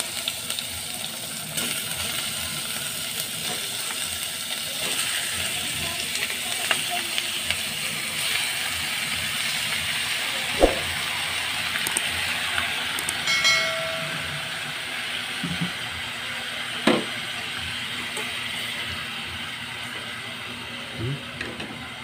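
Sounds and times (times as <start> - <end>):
chicken sizzling in hot oil: 0.0 - 22.0
short metallic ring: 13.3 - 14.4.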